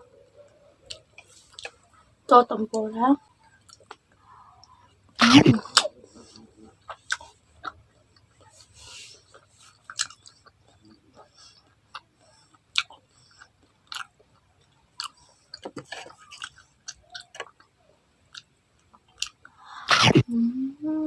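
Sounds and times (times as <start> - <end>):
person chewing fried food: 0.4 - 2.2, 3.3 - 19.7
mouth clicks and smacks: 9.3 - 20.3.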